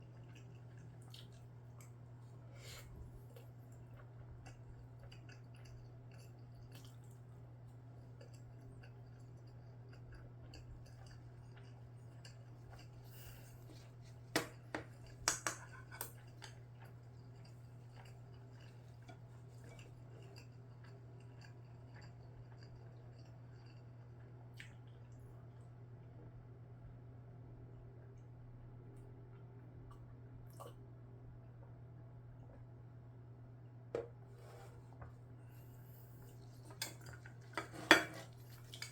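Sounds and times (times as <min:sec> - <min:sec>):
faint chewing: 0:00.0 - 0:25.7, 0:35.6 - 0:38.9
utensil clicking against dish: 0:14.4 - 0:16.6.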